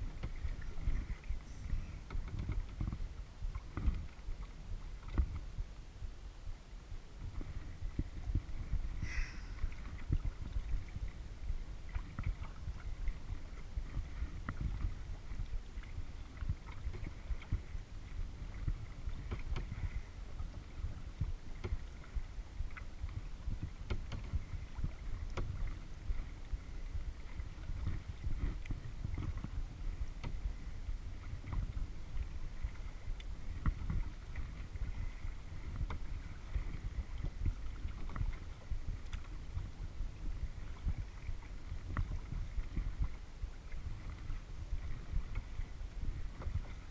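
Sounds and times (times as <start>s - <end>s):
paddle splashes: 0.0s - 5.6s, 7.0s - 46.9s
steady low rumble: 0.0s - 46.9s
water sloshing against hull: 0.0s - 46.9s
light ticks: 39.0s - 39.3s.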